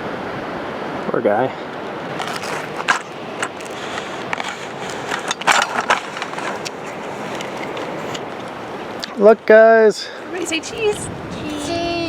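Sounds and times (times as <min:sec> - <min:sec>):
steady rushing hiss: 0:01.3 - 0:12.0
toy backhoe scraping gravel: 0:02.2 - 0:08.3.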